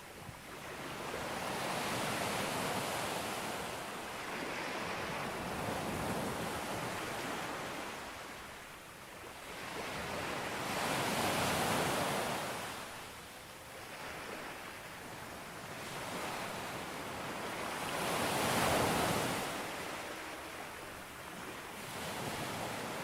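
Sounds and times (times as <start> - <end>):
sea waves breaking on beach: 0.5 - 8.7, 13.8 - 23.0.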